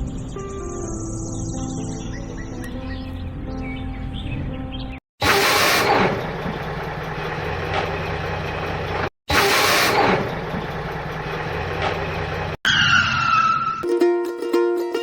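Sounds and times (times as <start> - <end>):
truck engine idling: 5.4 - 12.6.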